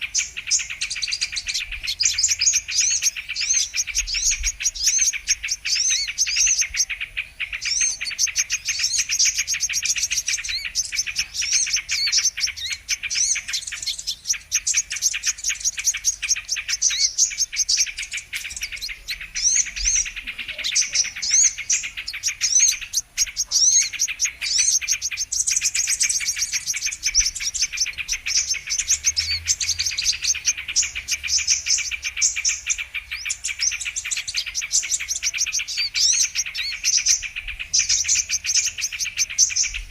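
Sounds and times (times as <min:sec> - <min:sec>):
birds chirping rapidly: 0:00.0 - 0:39.9.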